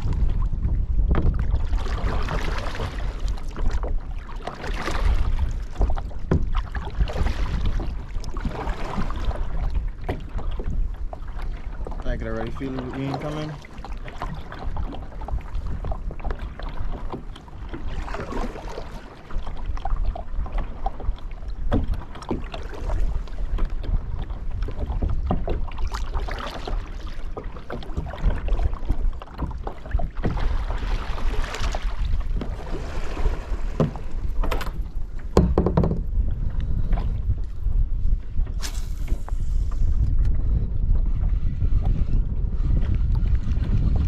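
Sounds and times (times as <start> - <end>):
water splashing and lapping: 0.0 - 44.0
wind rumbling on microphone: 0.0 - 44.0
knocks on kayak: 33.7 - 36.2.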